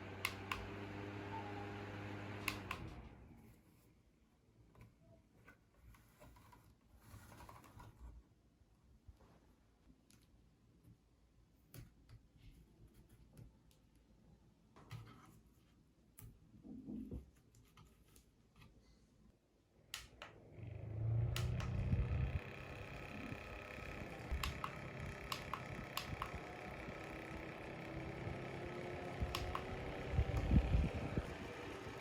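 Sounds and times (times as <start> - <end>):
small fan humming: 0.0 - 3.6, 19.9 - 32.0.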